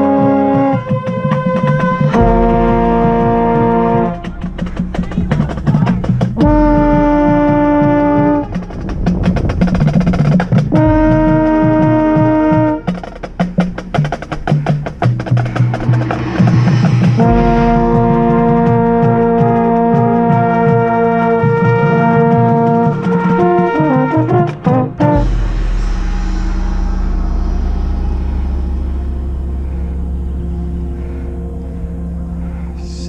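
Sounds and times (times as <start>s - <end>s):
brass sustained chords: 0.0s - 9.1s, 10.6s - 33.0s
rapid percussion: 0.0s - 30.0s.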